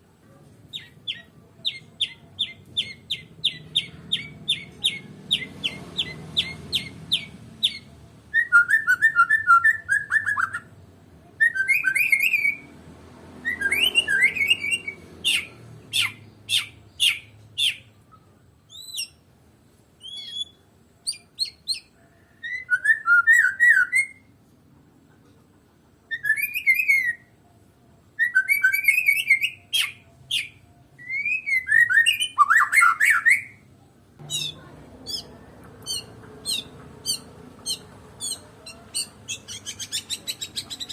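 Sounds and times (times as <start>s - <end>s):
songbird singing varied song: 0.7s - 10.7s, 13.5s - 19.3s, 20.0s - 24.2s, 28.2s - 33.6s, 34.2s - 40.9s.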